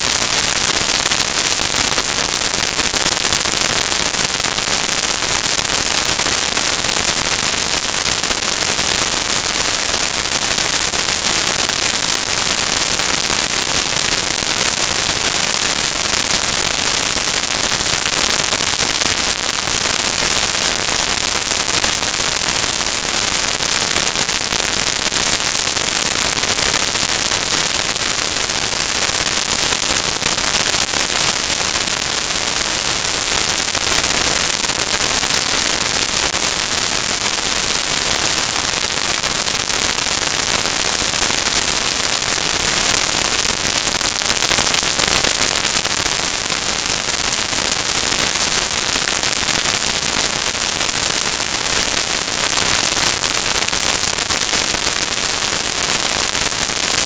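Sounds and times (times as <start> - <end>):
crackling static hiss: 0.0 - 57.0.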